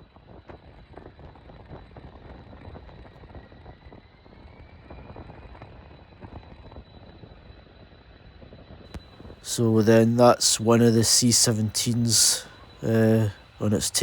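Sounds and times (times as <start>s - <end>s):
distant jet engines powering up: 9.4s - 14.0s.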